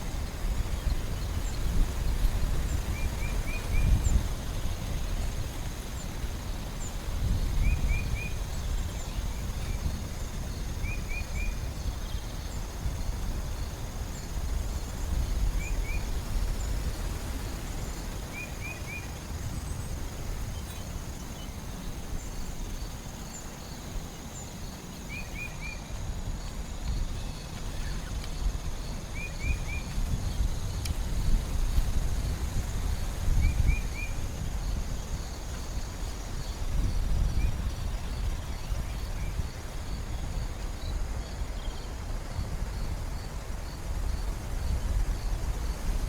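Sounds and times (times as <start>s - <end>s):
high insect drone: 0.0s - 46.0s.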